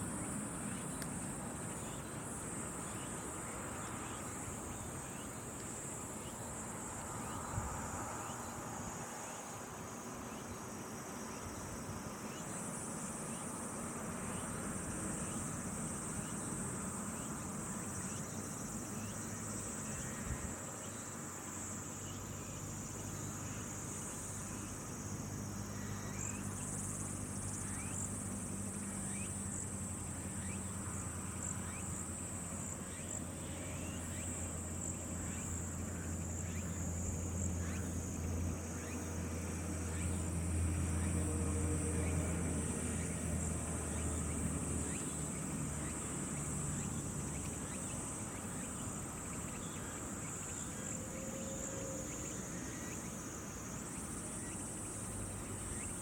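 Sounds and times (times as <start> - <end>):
high-pitched insect chorus: 0.0 - 56.0
short insect chirps: 17.2 - 56.0.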